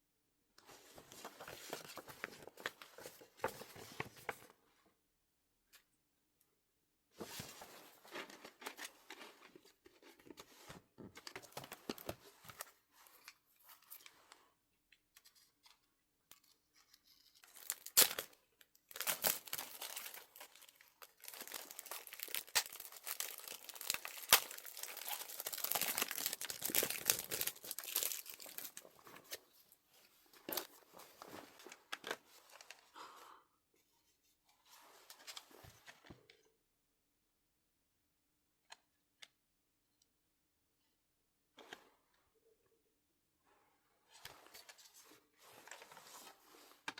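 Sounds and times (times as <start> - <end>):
packaging being torn open: 17.4 - 18.3, 18.9 - 28.8
wrapping crinkling: 17.4 - 29.4.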